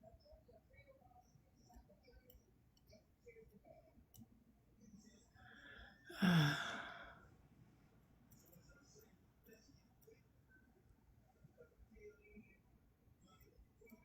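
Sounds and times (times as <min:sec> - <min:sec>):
person sighing: 0:06.1 - 0:07.2.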